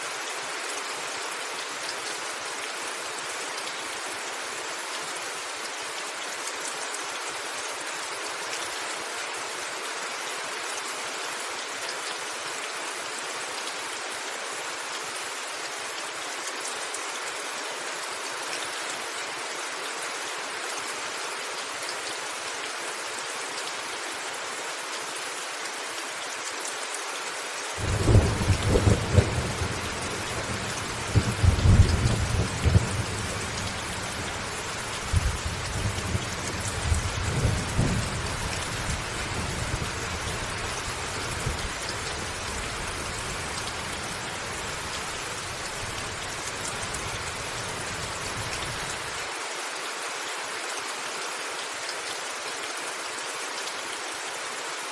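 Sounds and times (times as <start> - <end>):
rain falling on a roof: 0.0 - 54.9
thunder rumbling: 27.8 - 38.4.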